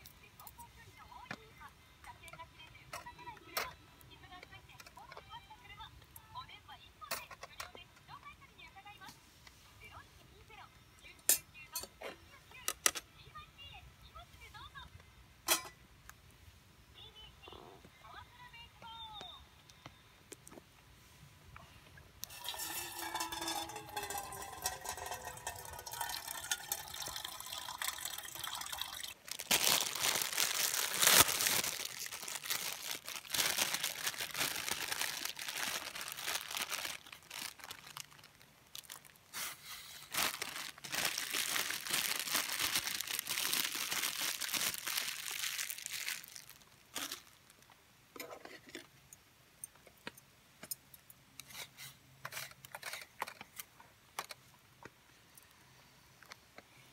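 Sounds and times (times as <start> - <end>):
liquid pouring into container: 22.2 - 29.3
crinkling crunching handling noise: 22.2 - 49.0.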